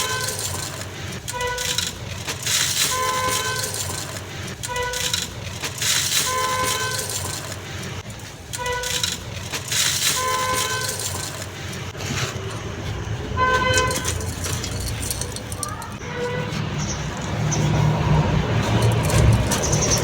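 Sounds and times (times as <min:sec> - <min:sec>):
vehicle horns honking: 0:00.0 - 0:07.6, 0:08.4 - 0:11.4, 0:12.3 - 0:20.0
sand crumbling onto clay pot: 0:00.0 - 0:12.8, 0:13.5 - 0:16.0.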